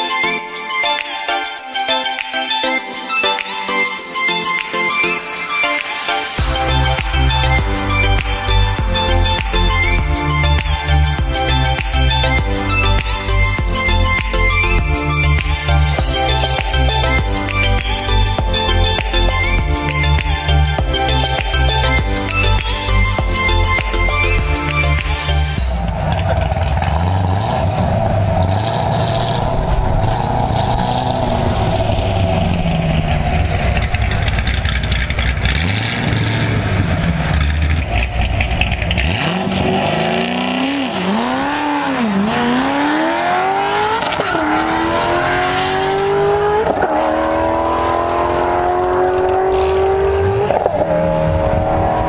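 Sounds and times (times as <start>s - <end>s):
car engine idling: 25.6s - 43.2s
car accelerating hard with upshifts: 25.8s - 52.0s.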